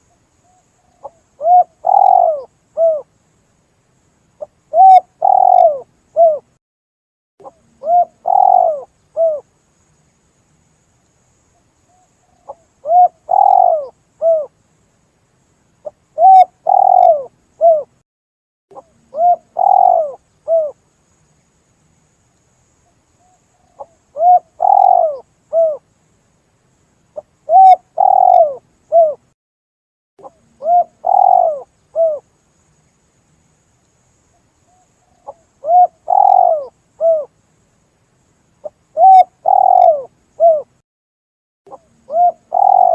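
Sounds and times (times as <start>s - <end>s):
dove cooing: 0.5s - 3.1s, 4.4s - 6.5s, 7.4s - 9.5s, 12.4s - 14.5s, 15.8s - 18.0s, 18.7s - 20.8s, 23.7s - 25.8s, 27.2s - 29.2s, 30.2s - 32.3s, 35.2s - 37.3s, 38.6s - 40.7s, 41.7s - 42.9s.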